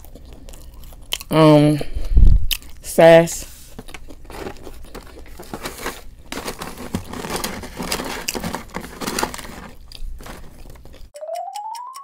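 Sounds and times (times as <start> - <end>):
crunching and chewing: 0.0 - 2.9, 3.7 - 11.1
paper packaging crinkling: 3.7 - 11.1
ticking music: 11.1 - 12.0.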